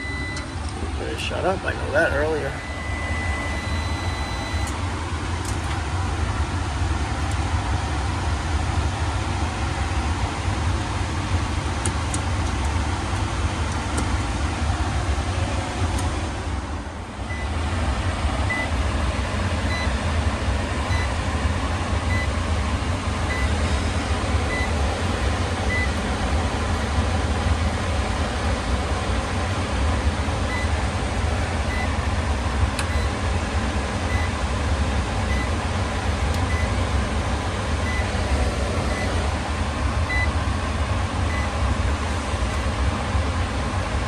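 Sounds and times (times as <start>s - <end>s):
loud machine noise: 0.0s - 44.0s
faint high beep: 2.5s - 4.7s.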